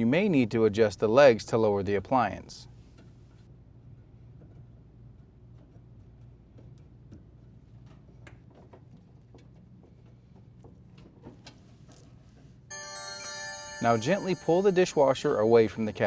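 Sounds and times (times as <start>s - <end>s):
low steady hum: 12.7s - 16.0s.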